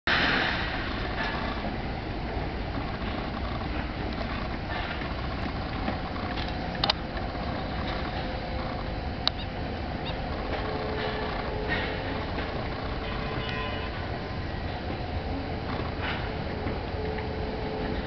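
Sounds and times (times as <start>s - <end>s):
low rumble: 0.1s - 13.4s.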